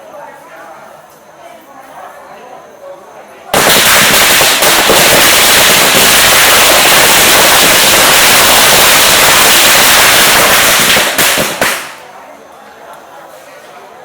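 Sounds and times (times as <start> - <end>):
firecrackers crackling: 3.5 - 12.2.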